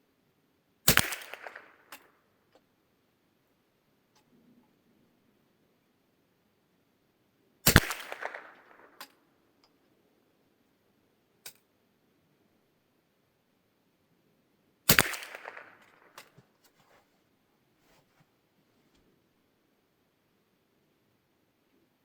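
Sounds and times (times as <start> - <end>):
rifle shots: 0.9 - 2.0, 7.7 - 9.0, 14.9 - 16.3.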